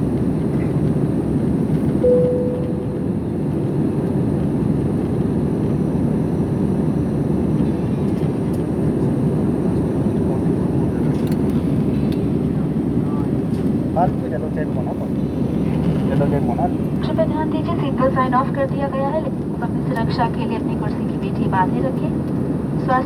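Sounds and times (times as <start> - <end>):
airliner cabin rumble: 0.0 - 23.0
cabin chime: 2.0 - 3.2.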